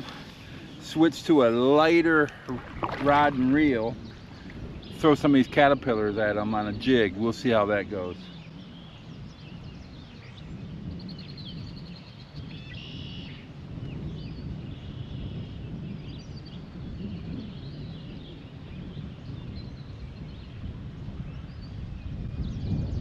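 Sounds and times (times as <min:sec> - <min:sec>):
steady low rumble: 0:00.0 - 0:12.7.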